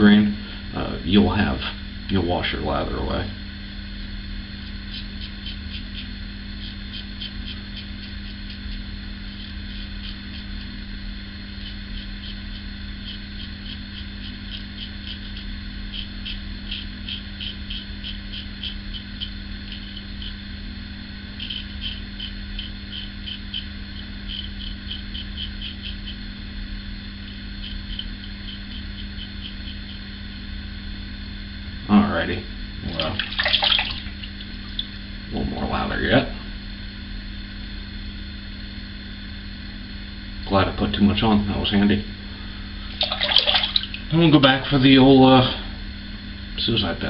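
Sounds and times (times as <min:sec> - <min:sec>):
steady low hum: 0:00.0 - 0:47.0
razor shearing stubble: 0:04.2 - 0:30.2.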